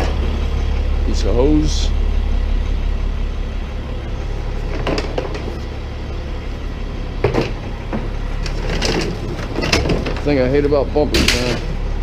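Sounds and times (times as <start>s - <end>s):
truck engine idling: 0.0s - 12.0s
scrap car parts clattering: 4.5s - 5.7s, 7.2s - 11.8s.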